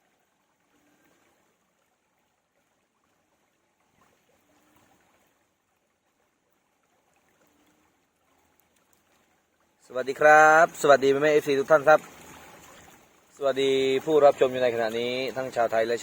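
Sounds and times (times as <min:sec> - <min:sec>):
faint steady hiss: 0:00.0 - 0:16.0
soft ticks: 0:08.5 - 0:09.2.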